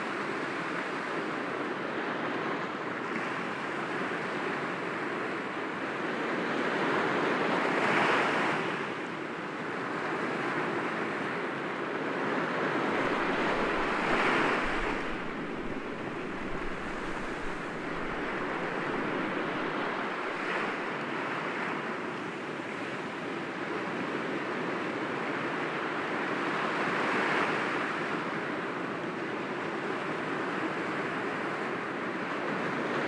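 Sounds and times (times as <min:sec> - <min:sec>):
waves breaking against rocks: 0:13.0 - 0:20.8.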